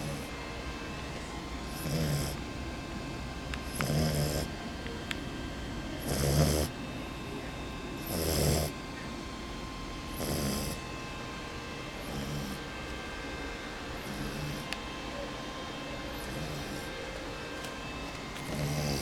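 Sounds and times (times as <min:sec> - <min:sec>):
dog snoring: 0:00.0 - 0:02.6, 0:03.6 - 0:04.6, 0:06.0 - 0:06.8, 0:08.0 - 0:08.8, 0:10.0 - 0:11.0, 0:11.9 - 0:19.0.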